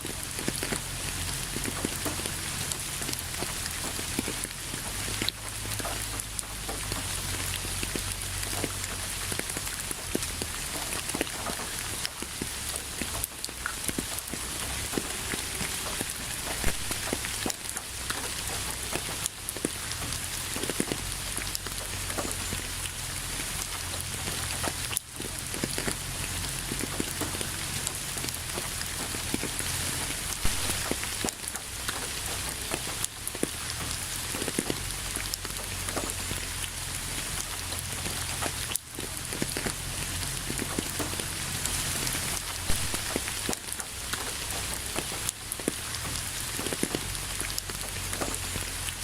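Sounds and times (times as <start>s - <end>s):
rain pattering on a surface: 0.0s - 49.0s.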